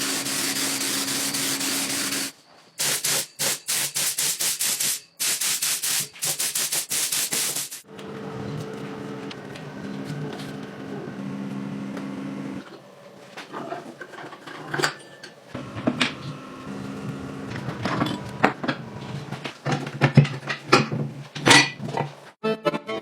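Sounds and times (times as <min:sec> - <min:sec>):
small motor humming: 0:00.0 - 0:02.3.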